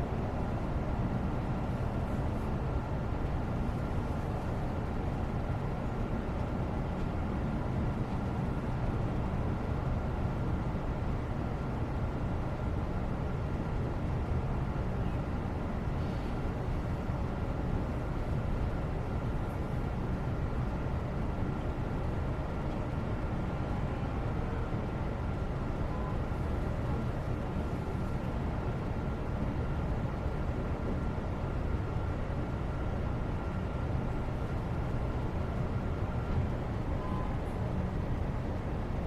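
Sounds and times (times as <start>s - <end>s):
faint high steady tone: 36.9s - 37.7s.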